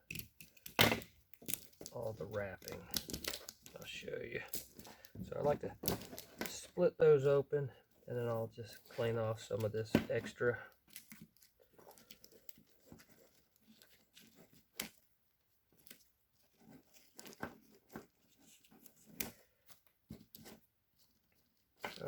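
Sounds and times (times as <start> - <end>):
tape tearing and crinkling: 0.5 - 4.9.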